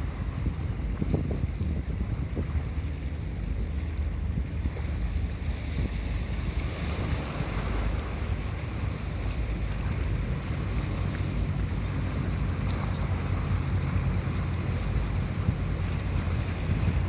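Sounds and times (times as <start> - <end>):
ship engine rumble: 0.0 - 17.0
water wash: 0.0 - 17.0
wind buffeting microphone: 0.0 - 17.0.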